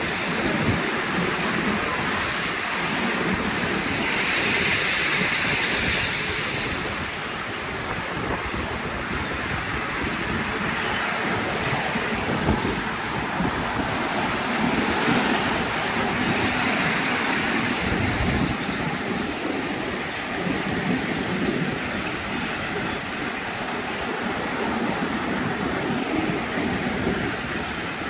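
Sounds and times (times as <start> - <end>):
train wheels rumbling on track: 0.0 - 28.0
wind noise on microphone: 0.0 - 28.0.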